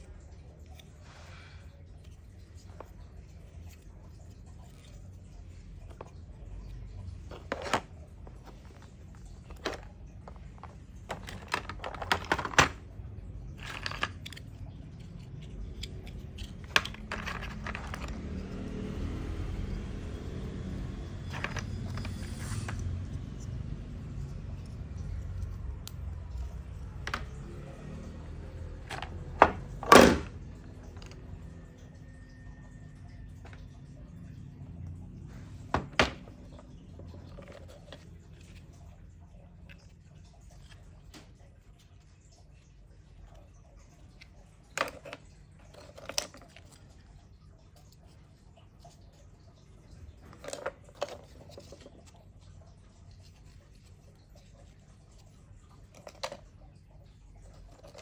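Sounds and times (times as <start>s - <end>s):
small hard pieces clicking: 2.0s - 19.1s, 19.9s - 22.8s, 23.4s - 31.6s.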